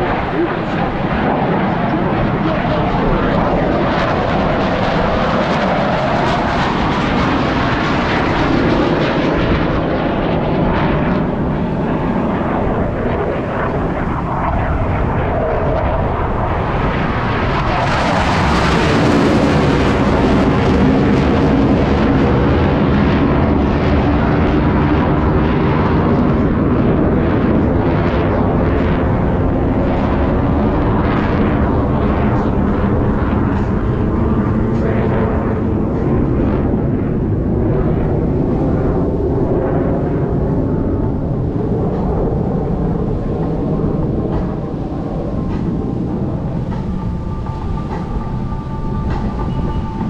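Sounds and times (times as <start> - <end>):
jets flying by roaring: 0.0 - 50.0.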